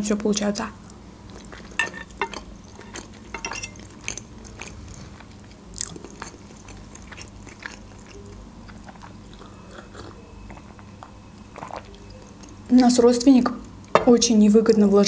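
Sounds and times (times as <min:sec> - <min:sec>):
person chewing with mouth clicks: 0:00.9 - 0:12.7.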